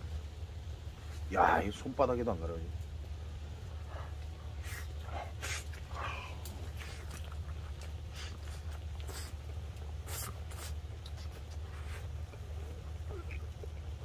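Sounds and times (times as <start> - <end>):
steady low hum: 0.0 - 14.0
man chewing: 4.1 - 14.0.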